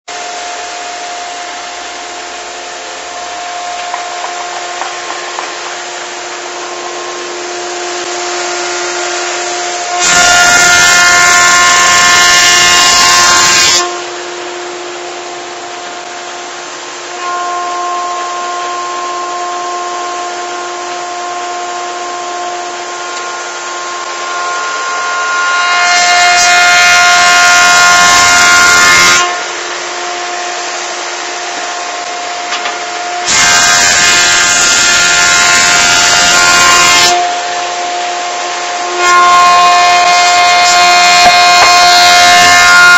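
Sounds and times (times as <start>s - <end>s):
thicknesser whine: 0.1s - 17.2s, 18.1s - 42.9s
board being planed: 6.6s - 14.0s, 22.9s - 29.4s, 30.6s - 37.9s, 38.8s - 42.9s.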